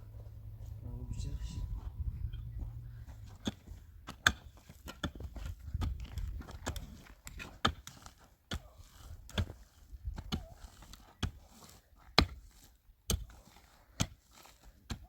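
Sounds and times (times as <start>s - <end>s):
low rumble: 0.0s - 4.1s.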